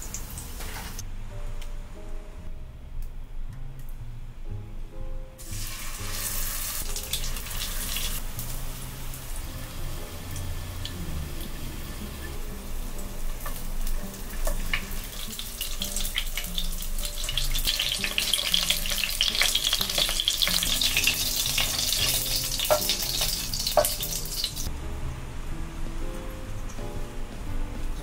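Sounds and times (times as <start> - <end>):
prawns crackling in oil: 13.4 - 24.7.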